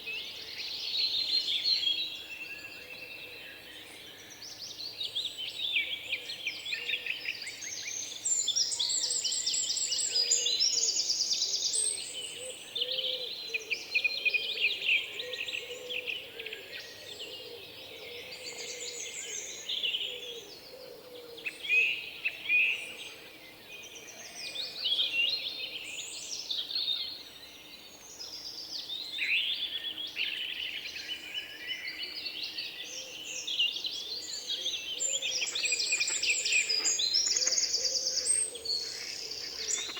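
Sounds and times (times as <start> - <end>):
small birds chirping: 32.2 - 39.9.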